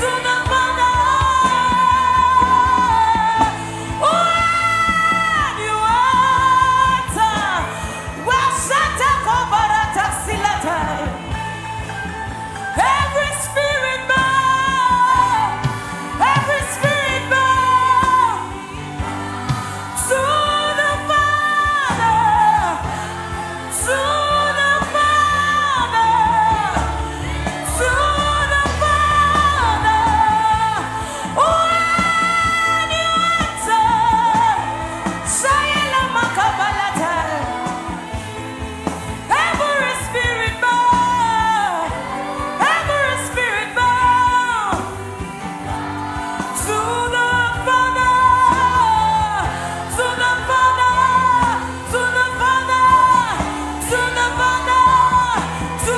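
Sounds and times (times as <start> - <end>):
instrumental accompaniment: 0.0 - 55.9
person singing gospel: 0.0 - 55.9.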